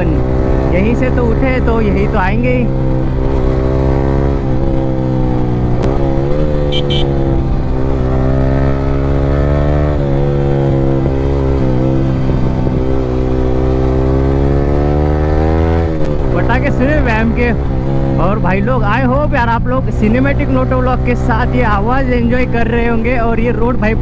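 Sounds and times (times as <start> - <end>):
motorcycle engine revving: 0.0 - 19.1.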